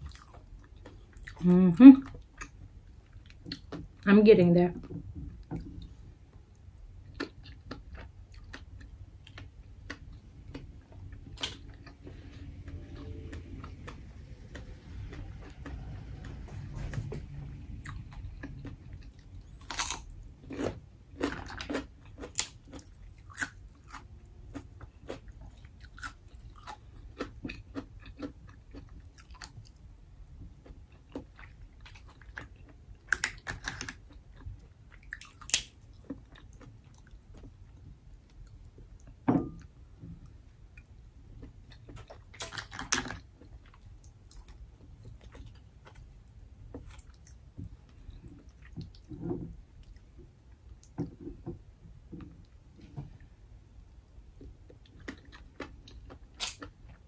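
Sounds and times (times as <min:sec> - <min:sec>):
crunchy chewing: 0:17.8 - 0:29.8, 0:30.6 - 0:37.8.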